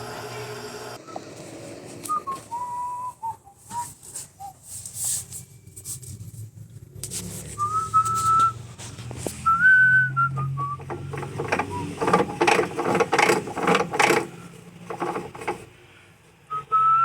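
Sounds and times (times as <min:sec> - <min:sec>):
person whistling a tune: 0:02.1 - 0:04.6, 0:07.6 - 0:08.6, 0:09.4 - 0:10.9, 0:16.5 - 0:17.0.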